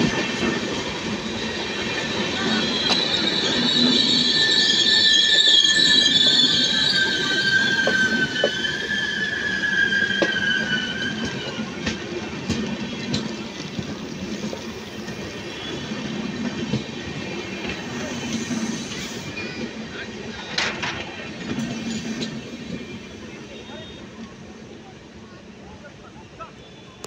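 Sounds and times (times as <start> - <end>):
train rumble: 0.0 - 25.2
wheel and brake squeal: 1.3 - 12.1, 12.8 - 19.8.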